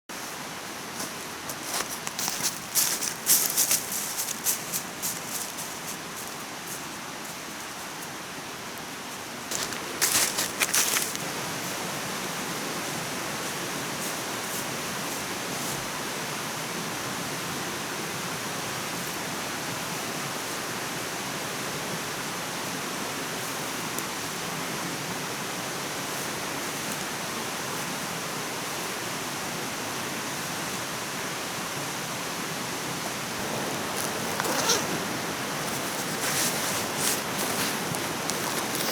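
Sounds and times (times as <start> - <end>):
rushing water: 0.2 - 38.9
brief rustles: 9.5 - 11.3, 33.4 - 38.9.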